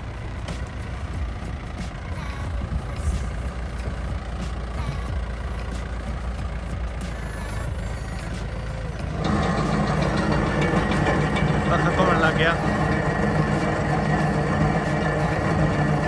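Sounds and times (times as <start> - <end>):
tractor engine rumbling: 0.0 - 16.0
sprayer running: 9.1 - 16.0.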